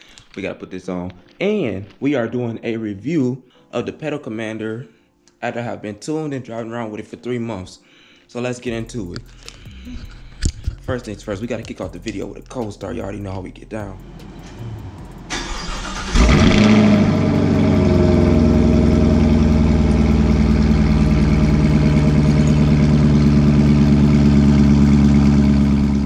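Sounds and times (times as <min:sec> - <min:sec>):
engine idling: 0:13.9 - 0:26.0
engine starting loudly: 0:14.0 - 0:26.0
starter motor cranking: 0:14.4 - 0:26.0.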